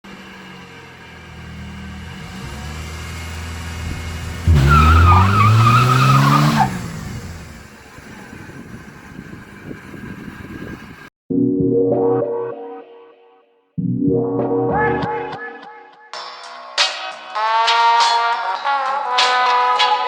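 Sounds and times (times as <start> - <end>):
car engine revving: 0.1 - 11.0
high wavering tyre squeal: 0.1 - 11.0.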